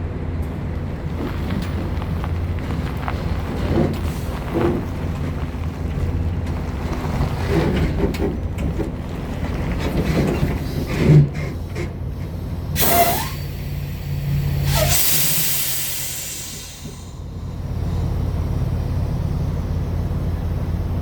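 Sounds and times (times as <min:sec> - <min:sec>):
diesel truck engine humming: 0:00.0 - 0:21.0
air brakes hissing: 0:10.6 - 0:18.2.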